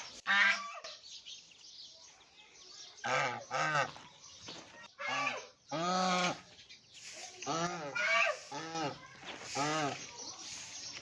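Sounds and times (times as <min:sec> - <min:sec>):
geese honking: 0:03.0 - 0:04.0, 0:07.4 - 0:10.6.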